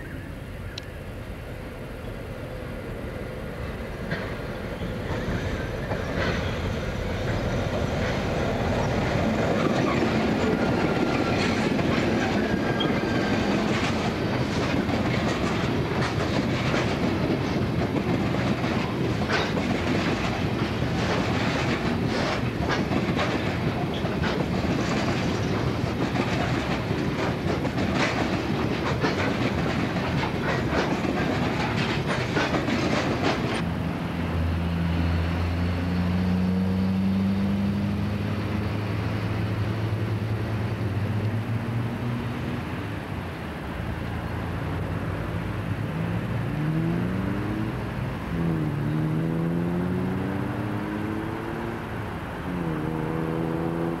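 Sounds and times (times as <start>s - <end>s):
diesel locomotive passing: 0.0s - 54.0s
wheels clacking over rails: 3.6s - 33.7s.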